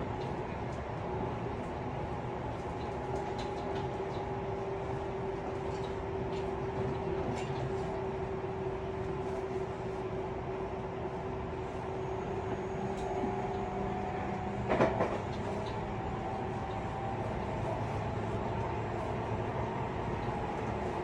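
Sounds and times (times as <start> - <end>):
train rail noise: 0.0 - 21.0
train clatter: 14.4 - 15.9.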